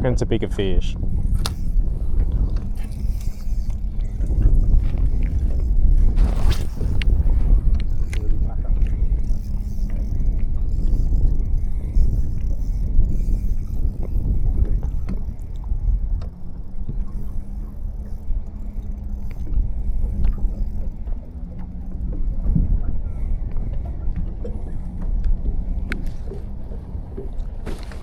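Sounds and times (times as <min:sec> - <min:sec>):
small boat motor humming: 0:00.0 - 0:28.0
wind and water rumble: 0:00.0 - 0:28.0.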